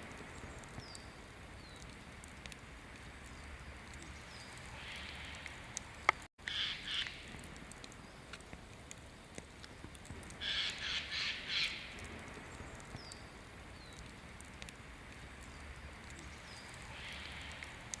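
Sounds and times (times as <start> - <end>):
faint outdoor background: 0.0 - 18.0
small birds chirping: 0.3 - 2.0, 3.2 - 5.8, 9.6 - 14.5, 15.3 - 18.0
bird giving harsh calls: 6.5 - 7.2, 10.4 - 11.8.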